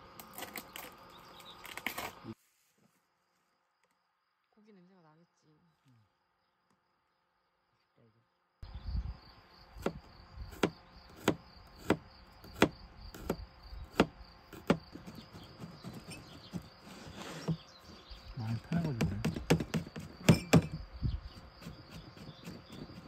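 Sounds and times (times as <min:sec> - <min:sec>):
insects trilling: 0:00.0 - 0:02.4, 0:03.2 - 0:23.0
sharp knocks: 0:18.7 - 0:20.8.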